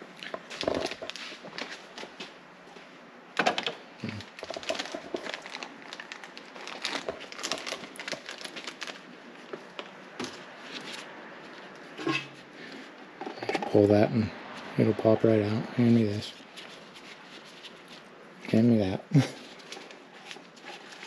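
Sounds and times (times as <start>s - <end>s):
packaging crinkling and rustling: 0.3s - 2.3s, 4.0s - 12.2s, 19.3s - 21.0s.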